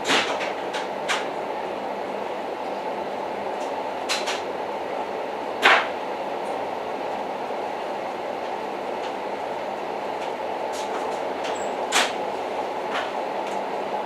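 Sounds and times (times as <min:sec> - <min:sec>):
train wheel clicks and clack: 0:00.0 - 0:01.4, 0:03.5 - 0:04.5, 0:05.6 - 0:06.6, 0:08.4 - 0:09.2, 0:10.2 - 0:13.7
train rumbling on rails: 0:00.0 - 0:14.0.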